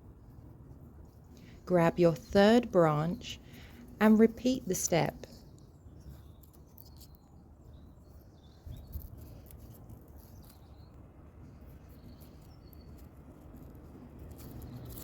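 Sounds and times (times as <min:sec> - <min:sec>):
steady low rumble: 0:00.0 - 0:06.0.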